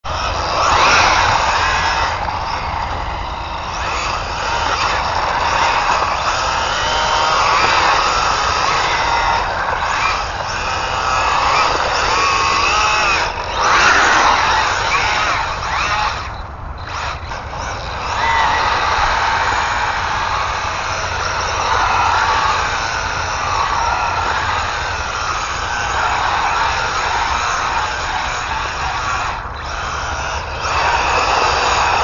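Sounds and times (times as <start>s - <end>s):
electric motor whining: 0.0s - 32.0s
tyres rushing on ground: 0.0s - 32.0s.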